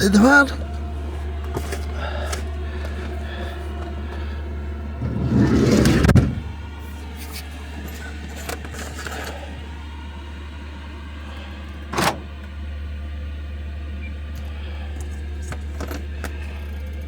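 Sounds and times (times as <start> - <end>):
diesel heater low roar: 0.0 - 17.0
loud rumbling rustle: 0.7 - 13.0.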